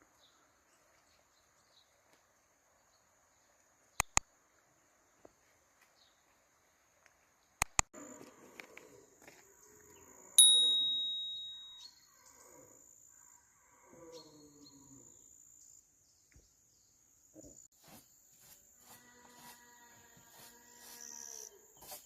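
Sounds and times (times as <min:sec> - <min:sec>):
high-pitched steady tone: 0:10.4 - 0:11.9
metallic ding: 0:10.4 - 0:11.9.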